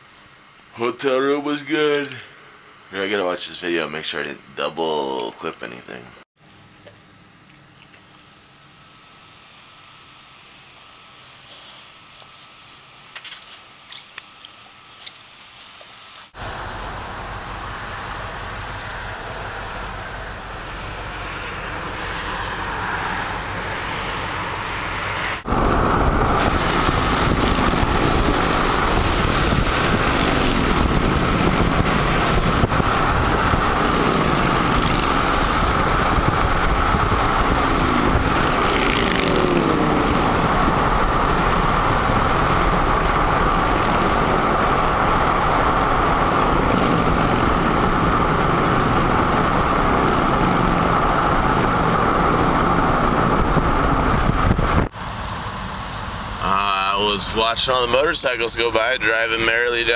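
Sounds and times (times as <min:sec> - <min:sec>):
engine pitch glides: 0:16.1 - 0:59.9
vehicle and road noise: 0:16.2 - 0:59.9.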